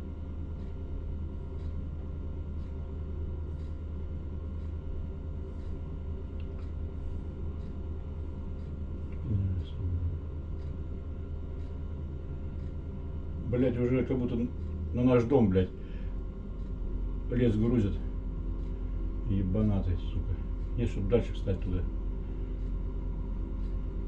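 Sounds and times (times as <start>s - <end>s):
faint ticks: 1.5s - 1.9s.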